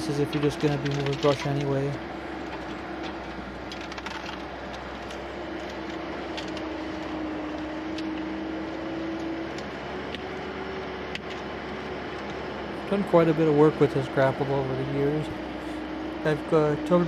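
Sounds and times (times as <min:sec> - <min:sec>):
brush crackling and snapping: 0:00.0 - 0:13.0
skid steer engine running: 0:00.0 - 0:17.0.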